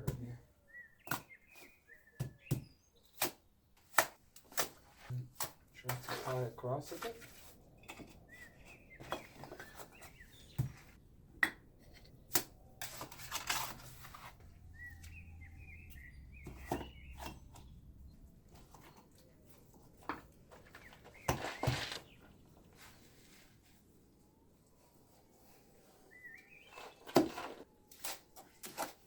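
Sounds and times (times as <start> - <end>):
small bird chirping: 0.6 - 3.3, 7.8 - 11.0, 14.4 - 19.6, 26.1 - 27.2.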